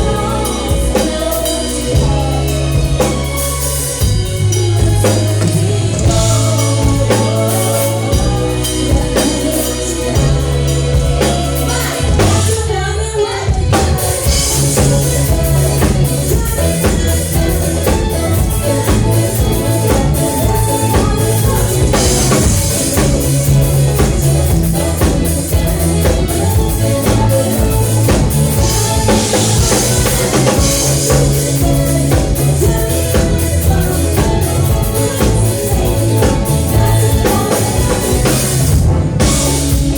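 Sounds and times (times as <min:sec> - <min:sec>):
live band playing: 0:00.0 - 0:39.9
person singing: 0:00.0 - 0:39.9
drum beat: 0:13.6 - 0:39.9.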